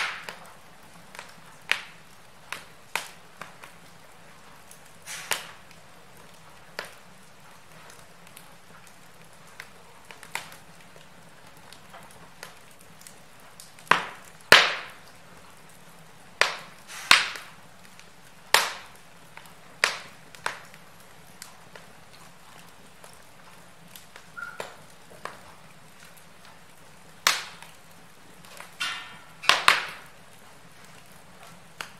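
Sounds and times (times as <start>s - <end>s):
low fire hiss: 0.0s - 31.9s
wood fire crackling and popping: 0.0s - 31.9s
faint whistle: 24.4s - 24.8s.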